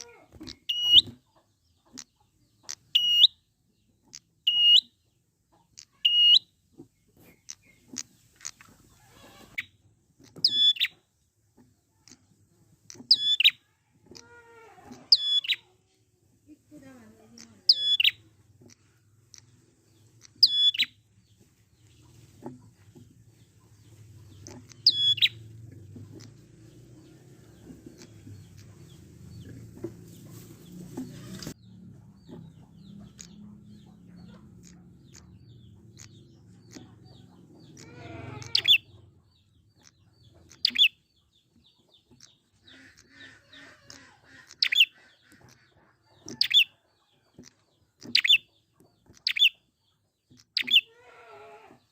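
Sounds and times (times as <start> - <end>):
bird sharp high chirps: 0.0 - 1.3, 1.9 - 5.1, 5.7 - 6.6, 7.2 - 11.0, 12.9 - 13.7, 14.6 - 15.7, 17.4 - 21.0, 23.8 - 25.6, 31.0 - 46.8, 47.5 - 49.8, 50.4 - 50.9.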